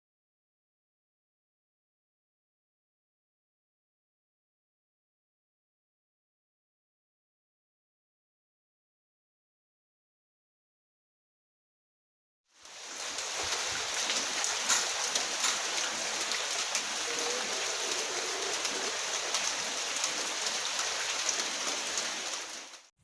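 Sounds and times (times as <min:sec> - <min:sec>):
heavy rain falling: 0:12.6 - 0:22.9.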